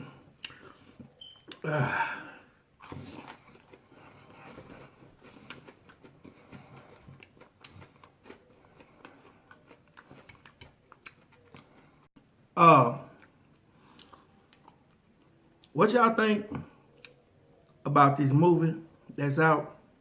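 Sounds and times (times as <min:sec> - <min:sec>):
person chewing and biting food: 0:00.2 - 0:01.8, 0:02.7 - 0:12.1, 0:13.2 - 0:15.7
wet mouth clicks and smacks: 0:09.5 - 0:11.7.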